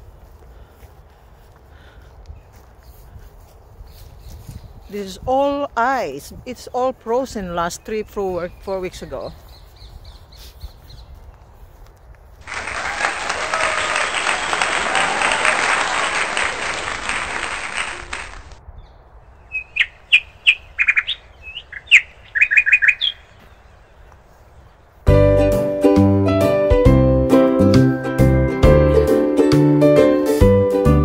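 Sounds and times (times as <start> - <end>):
dense bird chattering: 19.3 - 24.1
short sharp bird chirps: 19.4 - 23.6
background music: 25.1 - 31.0.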